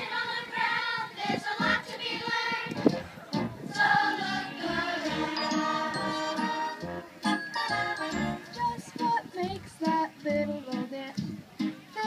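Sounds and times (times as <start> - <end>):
choir singing: 0.0 - 2.7, 3.6 - 7.0
music: 0.0 - 12.0.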